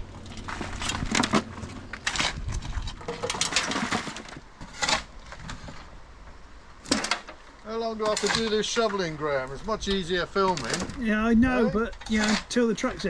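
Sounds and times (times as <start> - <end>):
shovel scraping loose material: 0.4 - 5.9, 8.0 - 8.8.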